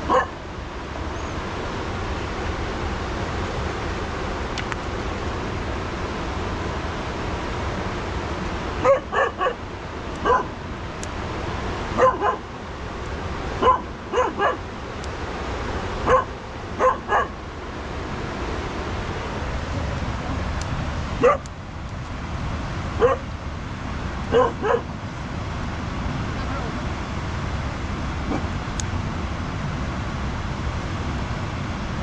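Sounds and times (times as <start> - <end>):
steady rushing noise: 0.0 - 32.0
dog barking: 0.1 - 0.3, 8.8 - 9.6, 10.2 - 10.5, 12.0 - 12.4, 13.6 - 14.6, 16.1 - 17.3, 21.2 - 21.5, 23.0 - 23.2, 24.3 - 24.9.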